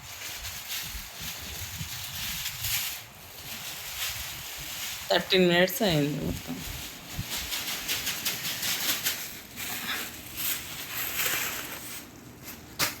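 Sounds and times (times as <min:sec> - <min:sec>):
flower stems rustling: 0:00.0 - 0:13.0.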